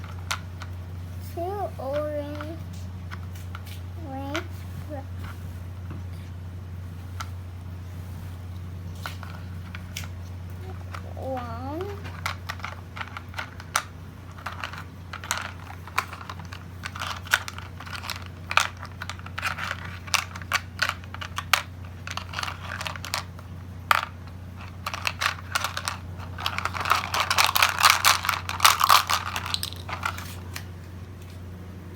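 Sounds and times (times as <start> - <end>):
plastic toy blocks clattering: 0.0 - 0.8, 9.0 - 30.7.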